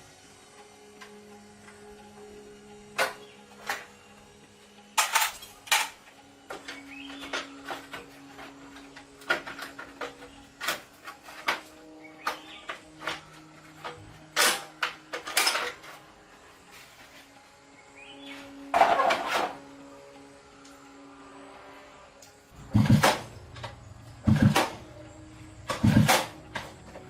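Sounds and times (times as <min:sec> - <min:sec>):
metal tools clinking and knocking: 0:05.0 - 0:06.0, 0:13.8 - 0:15.9.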